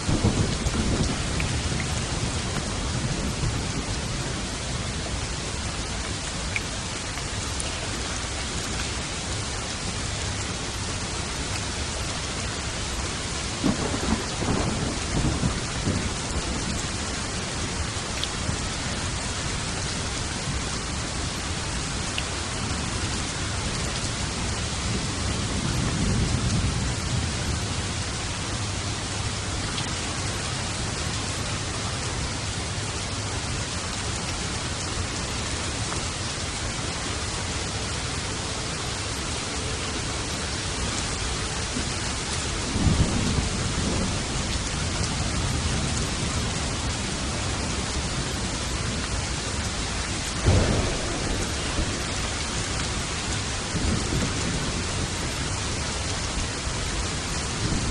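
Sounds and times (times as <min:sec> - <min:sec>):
thunderclaps: 0:00.0 - 0:04.0, 0:13.6 - 0:16.8, 0:50.3 - 0:55.6
thunder rumbling: 0:00.0 - 0:05.0, 0:12.8 - 0:20.7, 0:41.6 - 0:57.9
heavy rain: 0:00.0 - 0:57.9.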